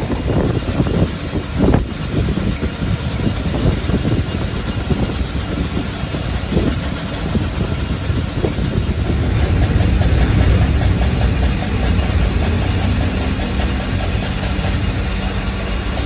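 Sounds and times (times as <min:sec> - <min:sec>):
boring machine rumbling: 0:00.0 - 0:16.0.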